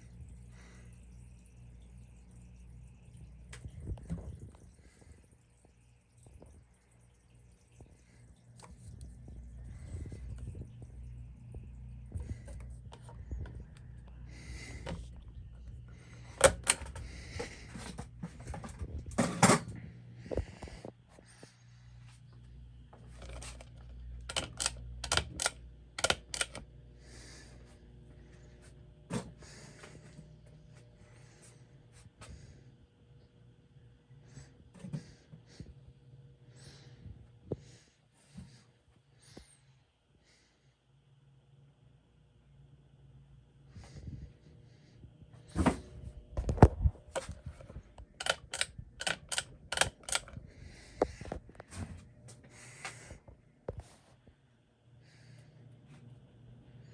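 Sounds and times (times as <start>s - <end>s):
ceiling fan motor hum: 0.0s - 56.9s
sharp clicks: 16.4s - 17.0s, 24.3s - 26.6s, 48.2s - 50.4s.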